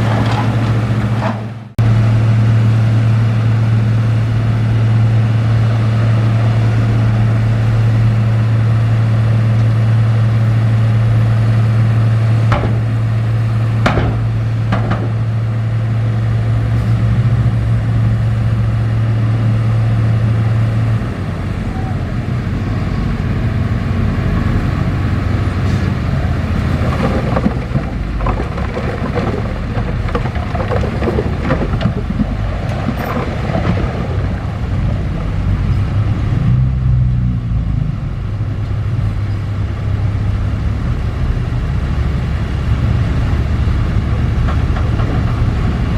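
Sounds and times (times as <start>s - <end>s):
diesel machinery engine drone: 0.0s - 45.9s
sharp knocks: 12.5s - 13.0s, 13.8s - 15.2s
clanks of metal and rock: 12.5s - 13.2s, 13.8s - 15.4s, 26.4s - 35.9s, 43.9s - 45.9s.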